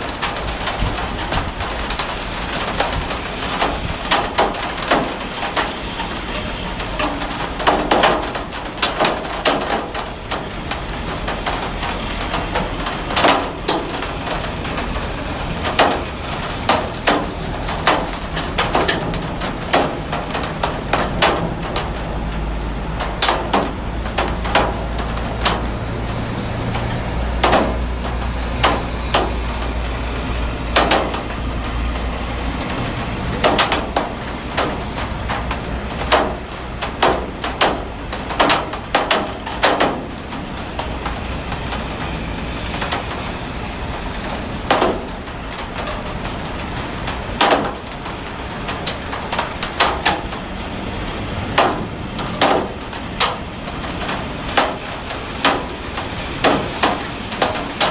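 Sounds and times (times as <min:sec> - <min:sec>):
heavy rain falling: 0:00.0 - 0:57.9
sharp taps and knocks: 0:23.0 - 0:29.9, 0:32.7 - 0:43.2, 0:44.2 - 0:50.4, 0:51.5 - 0:57.9.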